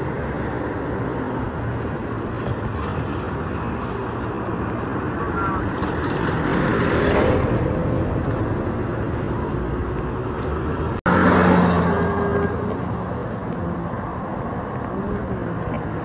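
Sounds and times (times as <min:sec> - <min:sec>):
cars passing close by: 0:00.0 - 0:16.0.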